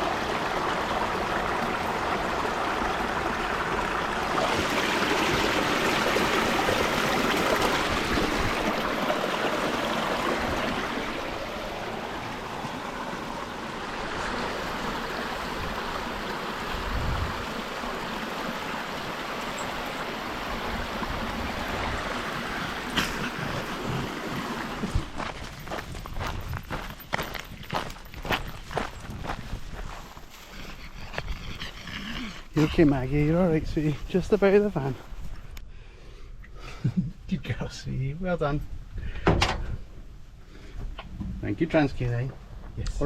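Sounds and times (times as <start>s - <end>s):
river water flowing: 0.0s - 29.4s.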